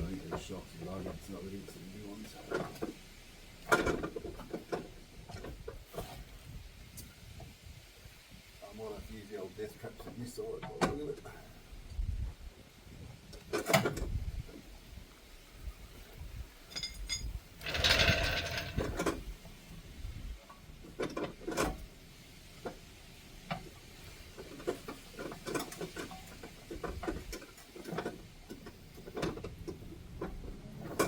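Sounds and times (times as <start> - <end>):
metallic tool clanks: 16.7 - 18.8.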